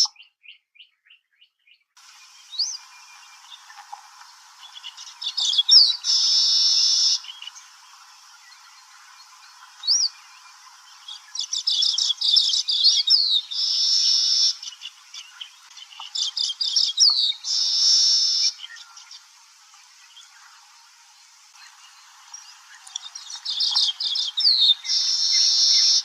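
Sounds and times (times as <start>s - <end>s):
bird singing: 0.0s - 26.0s.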